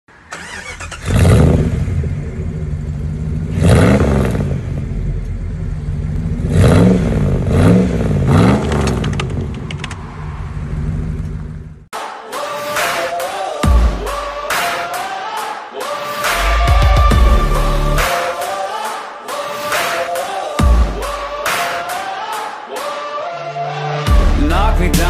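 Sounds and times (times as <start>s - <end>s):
vehicle engine idling and revving: 0.1s - 11.9s, 16.4s - 18.2s.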